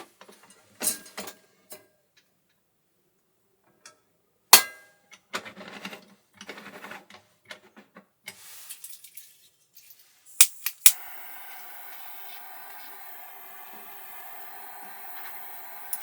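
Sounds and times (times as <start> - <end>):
short hiss: 10.3 - 16.0.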